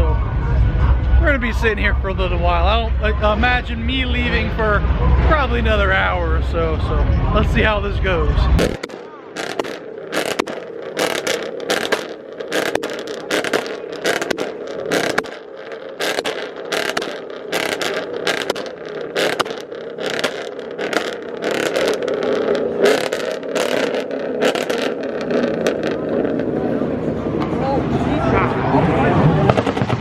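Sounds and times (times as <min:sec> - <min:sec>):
car engines running: 0:00.0 - 0:30.0
short sharp noisy bursts: 0:08.6 - 0:25.0.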